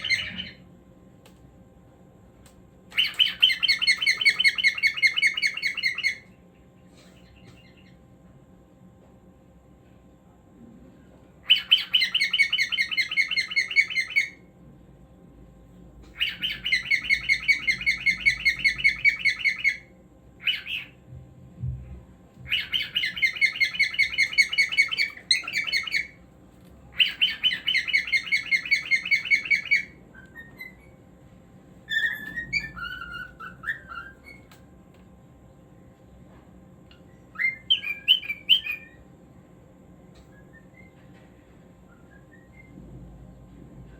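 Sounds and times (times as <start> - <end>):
cockatiel chattering song: 0.0 - 0.6, 2.9 - 6.3, 11.4 - 14.4, 16.1 - 21.0, 22.5 - 26.2, 26.9 - 30.9, 37.3 - 39.0
cockatiel chirps: 0.0 - 0.6, 2.9 - 6.3, 11.4 - 14.4, 16.1 - 21.0, 22.5 - 26.2, 26.9 - 30.9, 31.8 - 34.6, 37.3 - 39.0.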